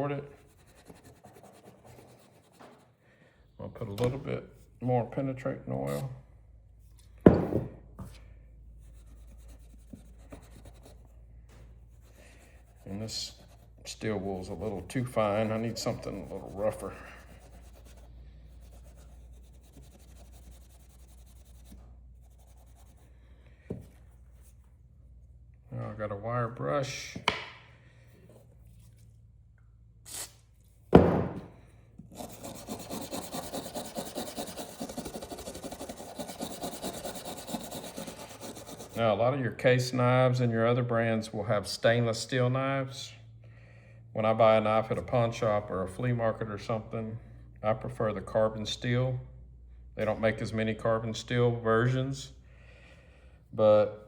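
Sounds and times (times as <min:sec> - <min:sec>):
steel wool rubbing a blade: 0:12.4 - 0:21.6, 0:32.1 - 0:39.0
sharp knocks: 0:30.9 - 0:31.5.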